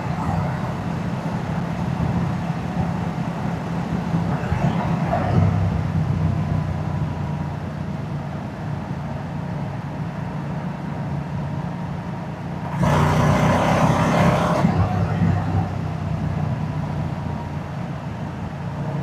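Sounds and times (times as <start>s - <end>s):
rush of noise: 0.0s - 8.5s, 12.6s - 18.1s.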